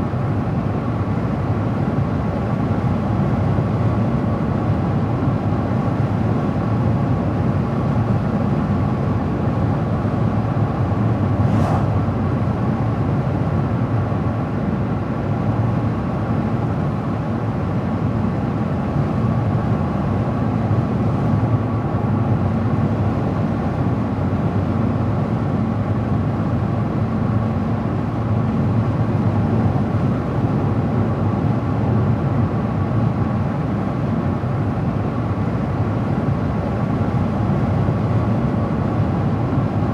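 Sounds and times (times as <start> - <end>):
car engine: 10.9 - 12.6.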